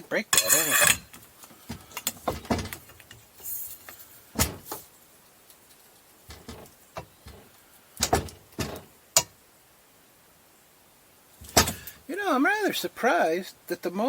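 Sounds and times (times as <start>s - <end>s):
metal tools clanking: 0.0s - 1.2s.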